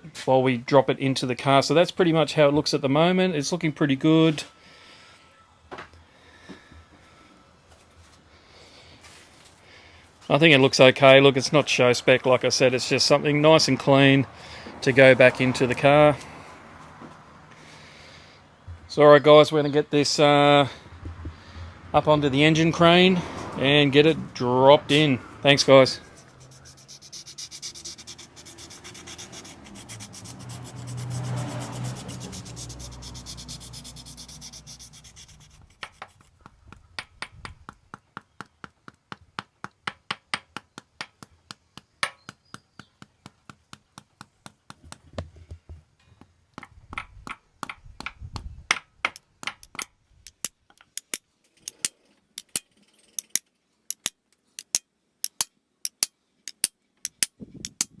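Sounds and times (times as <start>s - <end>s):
rubbing scraping noise: 25.6s - 36.4s.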